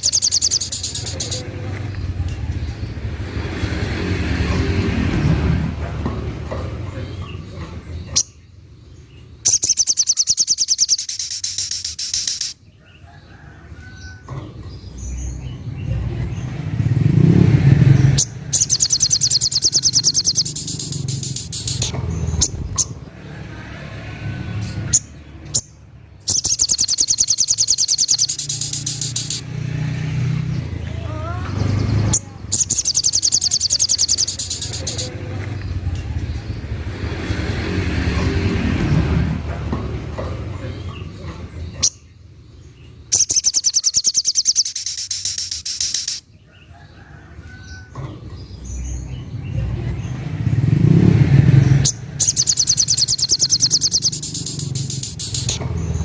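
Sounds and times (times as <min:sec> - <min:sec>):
bird singing a high trill: 0:00.0 - 0:01.5, 0:09.4 - 0:12.6, 0:18.1 - 0:22.9, 0:24.9 - 0:29.5, 0:32.1 - 0:35.1, 0:43.1 - 0:46.3, 0:51.8 - 0:56.0.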